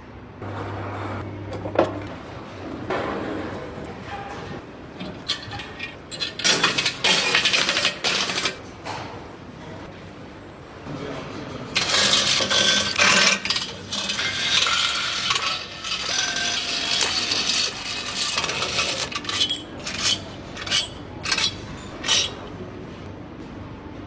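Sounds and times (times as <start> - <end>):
metal tools clinking and clattering: 11.8 - 22.6.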